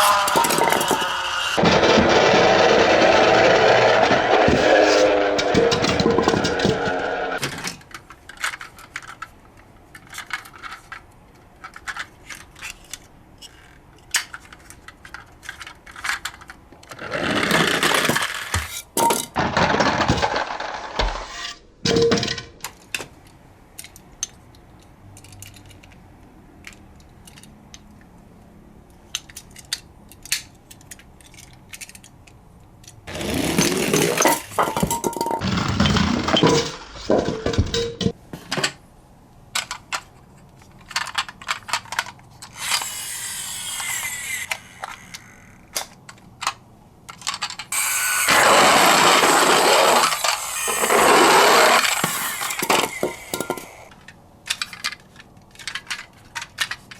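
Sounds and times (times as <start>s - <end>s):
toy cars clicking and clinking: 7.7s - 16.6s, 23.7s - 28.1s, 28.9s - 33.0s, 39.5s - 43.1s, 43.7s - 47.8s, 49.7s - 56.9s.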